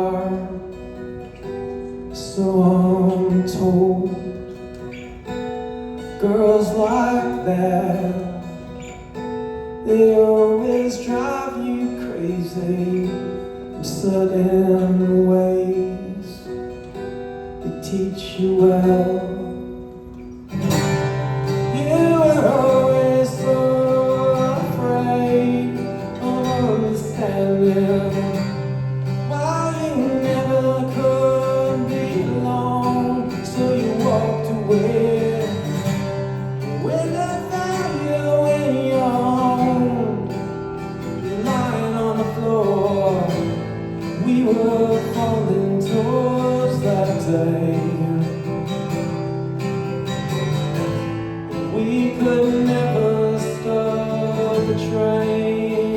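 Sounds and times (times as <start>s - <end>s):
strummed acoustic guitar: 0.0s - 55.9s
sliding wordless melody line: 18.0s - 48.7s.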